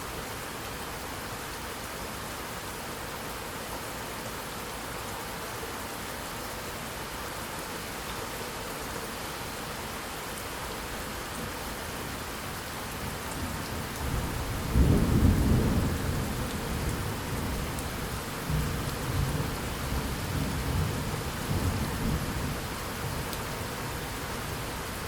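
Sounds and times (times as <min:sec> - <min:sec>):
steady rain falling: 0:00.0 - 0:25.0
thunder rumbling: 0:14.0 - 0:22.6.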